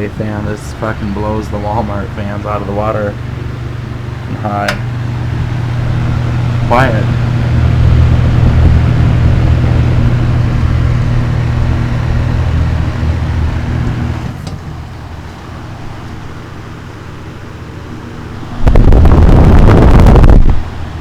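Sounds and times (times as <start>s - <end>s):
box fan running: 0.0s - 21.0s
fan switch click: 4.3s - 5.1s.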